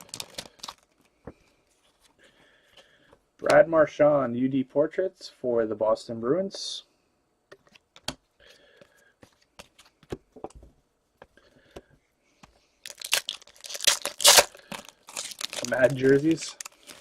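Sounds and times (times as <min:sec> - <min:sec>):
card pack wrapper tearing and crinkling: 0:00.0 - 0:00.9, 0:12.8 - 0:17.0.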